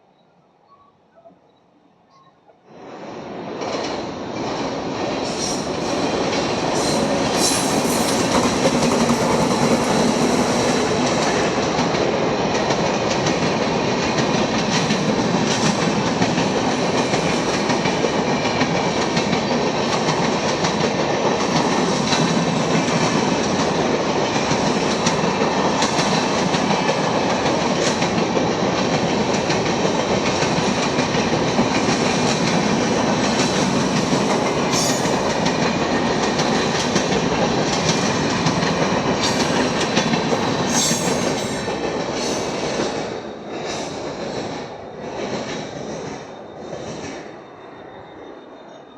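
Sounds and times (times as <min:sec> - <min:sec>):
train passing at speed: 0:02.6 - 0:48.9.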